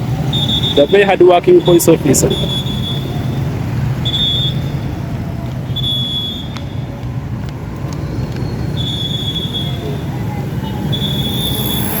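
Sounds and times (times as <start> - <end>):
passing vehicles rumbling: 0.0 - 12.0
shrill whistle-like tone: 4.0 - 4.9, 5.7 - 6.9, 8.4 - 12.0.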